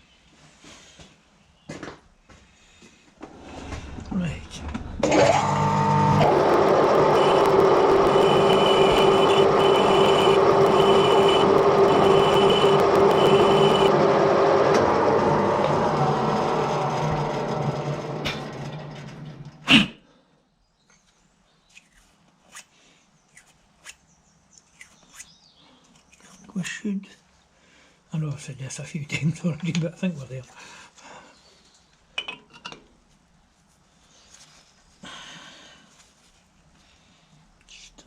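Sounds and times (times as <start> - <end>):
high whine: 5.0 - 18.8
metal lathe running: 5.0 - 19.4.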